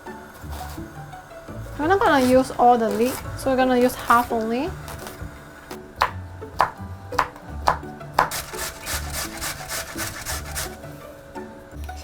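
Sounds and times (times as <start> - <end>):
knife chopping on wooden board: 4.1 - 10.8.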